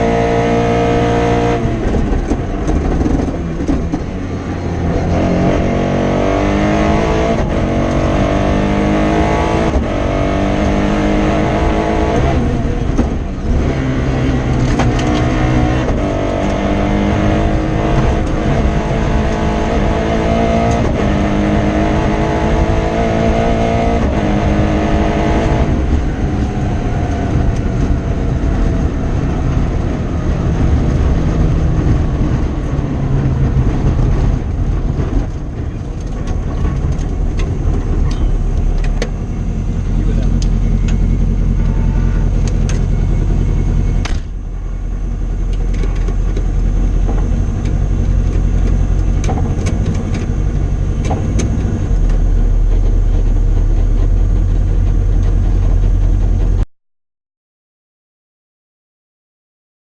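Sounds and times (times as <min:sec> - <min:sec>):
car engine revving from inside cabin: 0:00.0 - 0:03.8, 0:04.8 - 0:32.0, 0:37.6 - 0:44.0.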